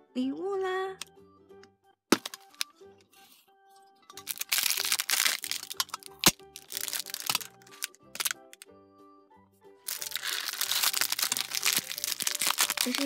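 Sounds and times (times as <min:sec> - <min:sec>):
light children's music: 0:00.0 - 0:13.0
sharp plastic cracks and clicks: 0:02.2 - 0:02.7, 0:04.2 - 0:08.7, 0:09.9 - 0:13.0
plastic packaging crinkling and tearing: 0:04.2 - 0:08.4, 0:09.9 - 0:13.0.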